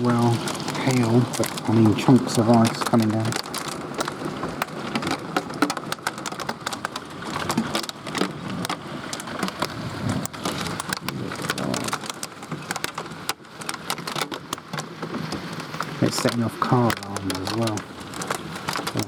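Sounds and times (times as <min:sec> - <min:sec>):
downpour hissing: 0:00.0 - 0:03.4, 0:11.0 - 0:12.0, 0:16.0 - 0:17.9
hail clicking on hard surfaces: 0:00.0 - 0:19.0.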